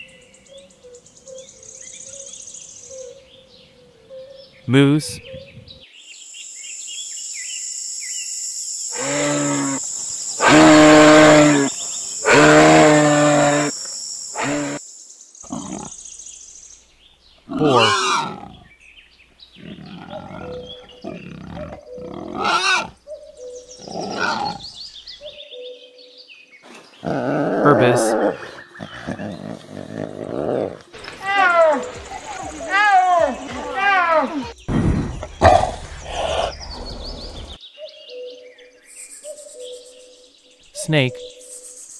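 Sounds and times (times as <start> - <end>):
steady high hiss: 6.3 - 17.0
wild boar calls: 8.9 - 14.8, 15.4 - 16.0, 17.4 - 18.7, 19.6 - 24.8
wild boar grunts: 15.4 - 16.0, 19.6 - 23.0, 27.0 - 30.8.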